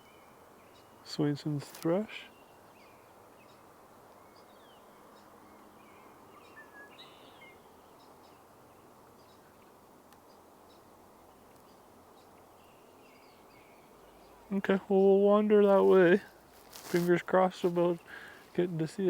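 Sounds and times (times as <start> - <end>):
faint bird chirps: 0.0 - 15.2.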